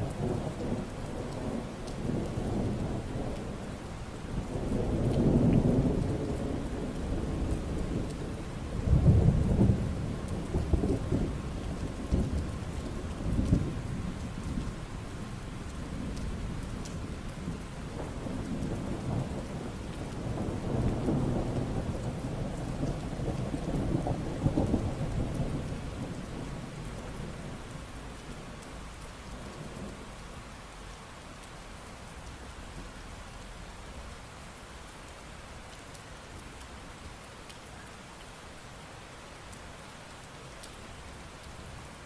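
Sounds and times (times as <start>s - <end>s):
steady rain falling: 0.0s - 42.0s
rolling thunder: 4.4s - 14.7s, 15.8s - 27.6s.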